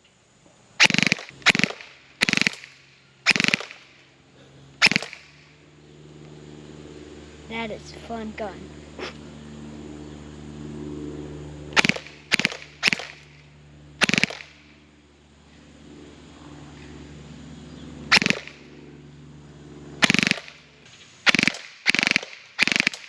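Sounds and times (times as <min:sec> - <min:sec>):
airsoft pistol rapid-fire bursts: 0:00.8 - 0:03.9, 0:04.8 - 0:05.3, 0:11.8 - 0:13.3, 0:14.0 - 0:14.6, 0:18.1 - 0:18.6, 0:20.0 - 0:20.6, 0:21.2 - 0:23.0.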